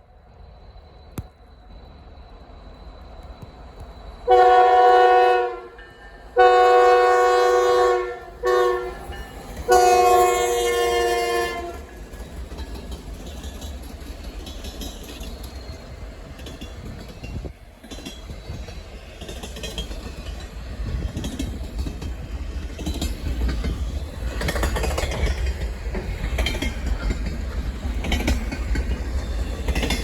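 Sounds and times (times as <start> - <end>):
train rumbling: 0.0 - 30.0
locomotive air horn blasts: 4.3 - 5.8, 6.4 - 9.0, 9.7 - 11.9.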